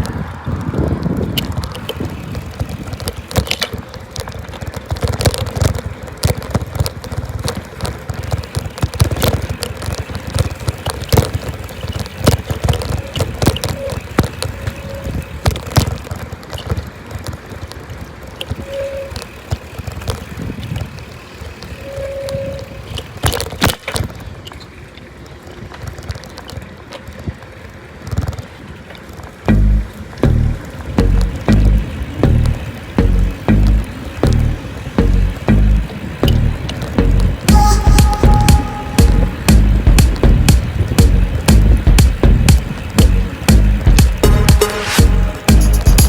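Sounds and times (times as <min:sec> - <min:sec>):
wind on microphone: 0:00.0 - 0:03.0, 0:34.6 - 0:44.3
bicycle rattling and clicking: 0:00.0 - 0:46.0
short squeaks: 0:12.6 - 0:15.4, 0:18.5 - 0:19.6, 0:21.6 - 0:23.9.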